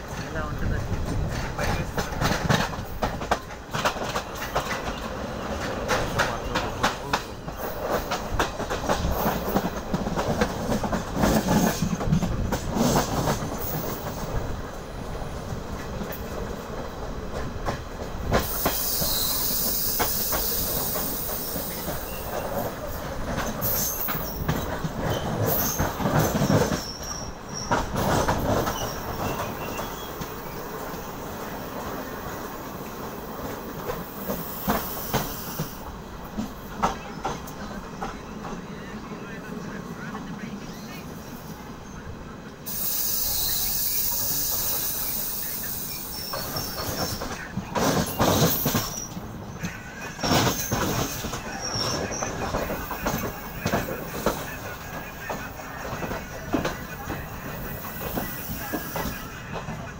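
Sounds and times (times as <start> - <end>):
wheels clattering over rail joints: 0.0 - 14.5, 15.7 - 31.1
train running rumble: 0.0 - 59.9
high hiss: 42.7 - 46.9.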